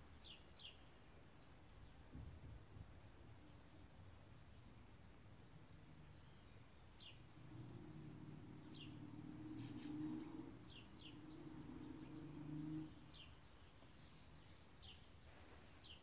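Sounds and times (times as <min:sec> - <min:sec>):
bird chirps: 0:05.7 - 0:15.2.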